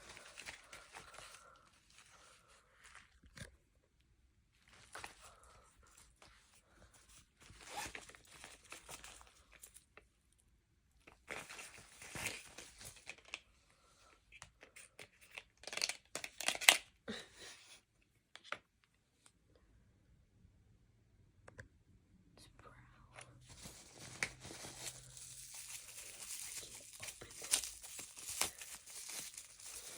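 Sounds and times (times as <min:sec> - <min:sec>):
packaging tearing and crinkling: 0:15.6 - 0:16.8, 0:23.6 - 0:29.9.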